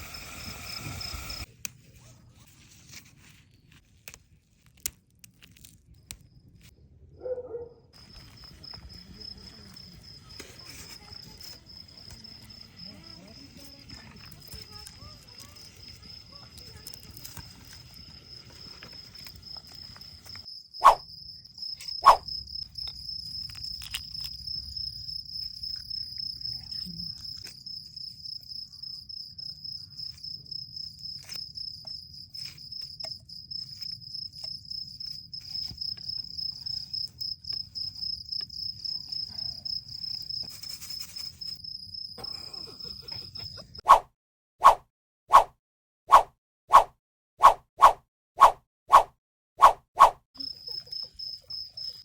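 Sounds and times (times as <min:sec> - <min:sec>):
cricket chirping: 0:00.0 - 0:01.5, 0:08.0 - 0:43.8, 0:50.4 - 0:52.0.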